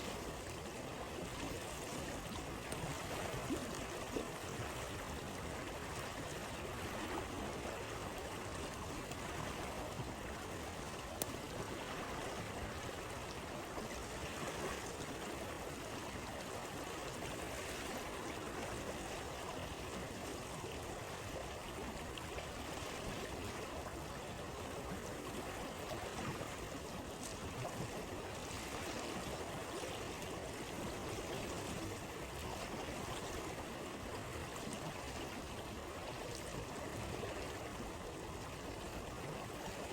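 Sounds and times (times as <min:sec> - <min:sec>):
campfire crackling and popping: 0:11.0 - 0:11.4.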